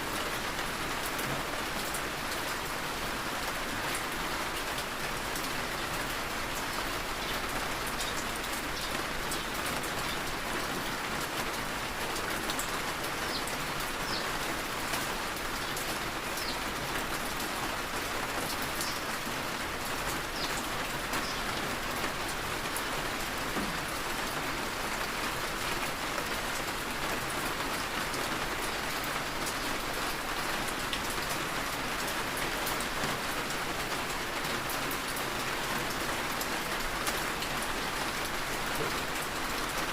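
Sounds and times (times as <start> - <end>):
heavy rain falling: 0.0 - 39.9
sharp raindrops ticking: 6.6 - 10.4, 11.2 - 25.2.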